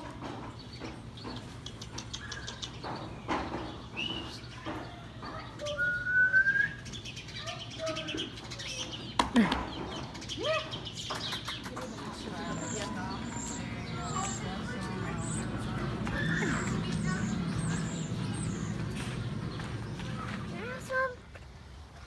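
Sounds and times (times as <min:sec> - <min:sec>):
bird chirps: 0:00.6 - 0:20.8
scattered knocks: 0:02.8 - 0:03.9
whistled bird calls: 0:03.9 - 0:04.5, 0:05.6 - 0:08.9.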